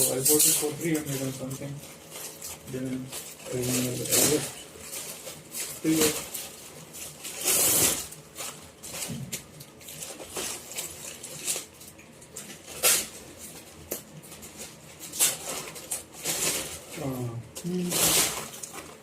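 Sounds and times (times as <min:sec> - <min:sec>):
fabric bag rustling: 0:00.4 - 0:11.8.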